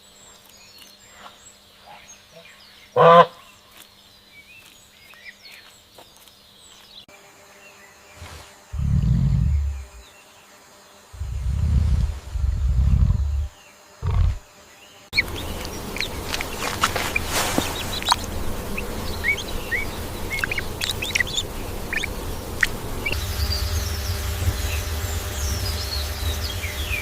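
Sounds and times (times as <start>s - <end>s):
birds chirping: 0.0s - 27.0s
steady low rumble: 8.7s - 10.0s, 11.2s - 14.4s, 15.2s - 27.0s.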